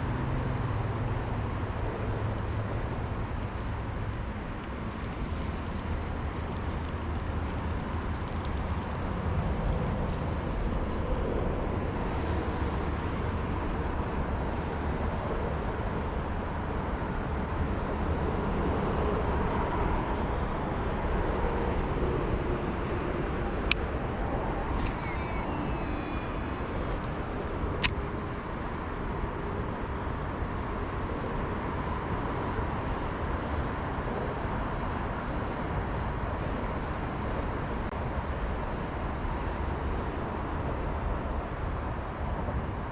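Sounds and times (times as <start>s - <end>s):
faint high chirps: 24.7s - 27.0s
sharp clicks: 24.7s - 27.2s.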